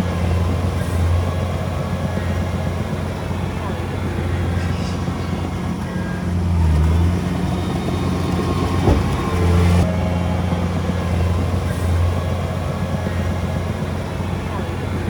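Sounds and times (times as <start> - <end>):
diesel machinery engine running: 0.0 - 15.0
short knock: 8.8 - 9.3.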